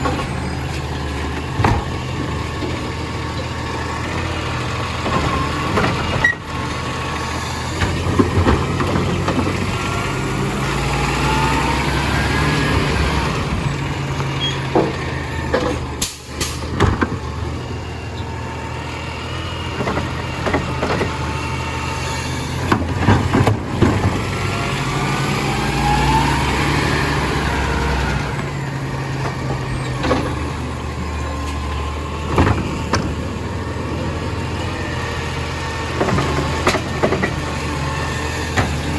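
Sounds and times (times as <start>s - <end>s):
truck engine running: 0.0s - 38.9s
sharp knocks and clunks: 1.3s - 2.8s, 14.2s - 17.3s, 22.6s - 24.3s.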